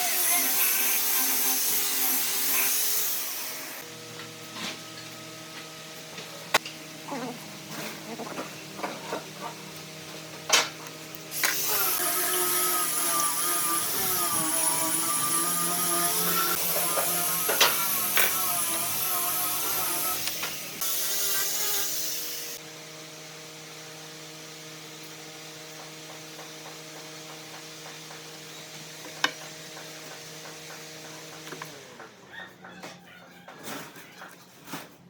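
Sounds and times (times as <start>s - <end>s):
power tool whining: 10.5s - 22.7s.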